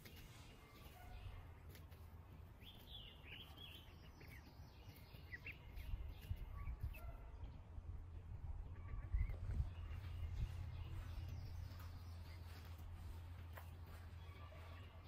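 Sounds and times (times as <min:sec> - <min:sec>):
steady low rumble: 0:05.4 - 0:15.0.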